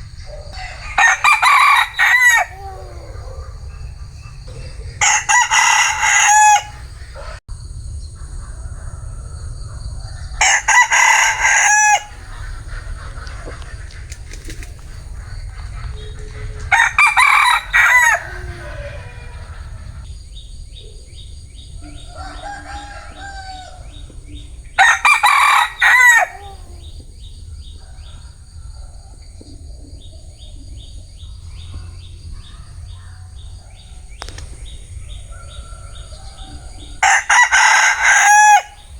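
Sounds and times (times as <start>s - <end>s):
rooster crowing: 0.0s - 7.4s, 8.6s - 14.0s, 14.6s - 20.1s, 21.8s - 29.2s, 31.1s - 38.9s.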